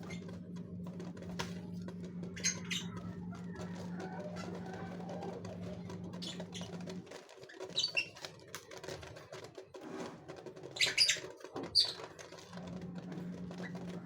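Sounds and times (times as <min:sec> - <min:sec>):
scratching and fluttering in cage: 0:00.0 - 0:14.0
cage birds chirping: 0:02.2 - 0:09.0, 0:10.4 - 0:14.0.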